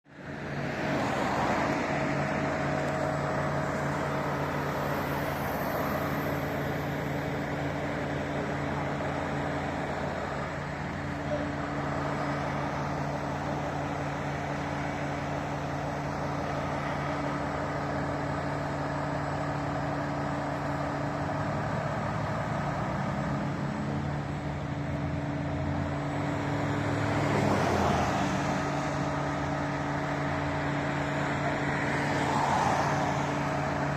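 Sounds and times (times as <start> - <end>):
street traffic: 0.0 - 33.9
truck engine idling: 0.1 - 33.9
vehicle passing: 0.5 - 11.0, 26.2 - 33.9.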